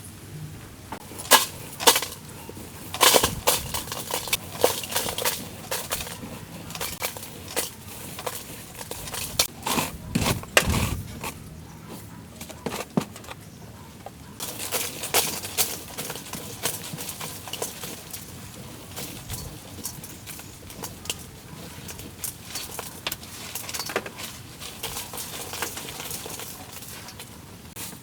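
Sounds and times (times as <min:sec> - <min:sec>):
hard objects knocking and clanking: 0:12.4 - 0:27.4.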